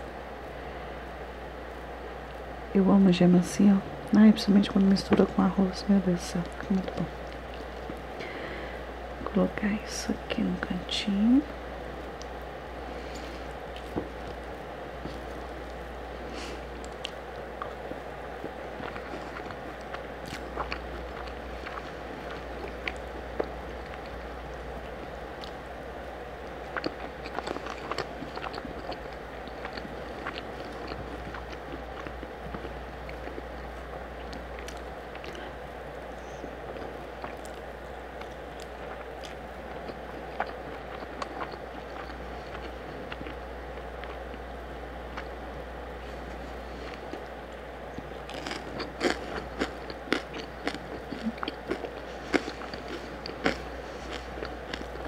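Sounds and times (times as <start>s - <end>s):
person chewing with mouth clicks: 16.4s - 25.6s, 26.4s - 35.6s, 36.2s - 44.4s, 46.2s - 55.0s.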